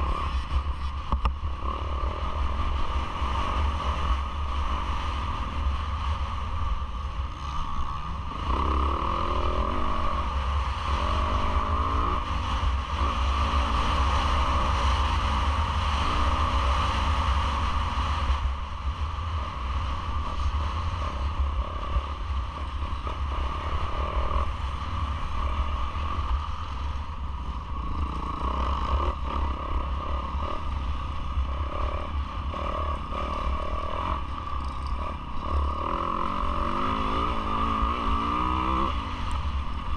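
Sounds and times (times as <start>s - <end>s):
motocross engine revving: 31.4s - 39.0s.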